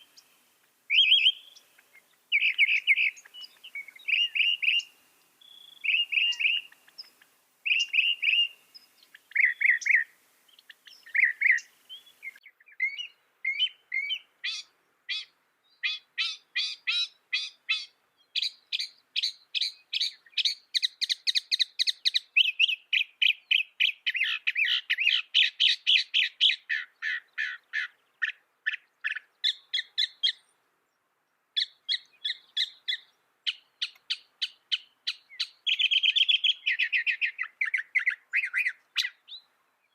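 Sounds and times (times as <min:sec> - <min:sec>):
mockingbird singing: 0:00.9 - 0:30.5, 0:31.6 - 0:39.9.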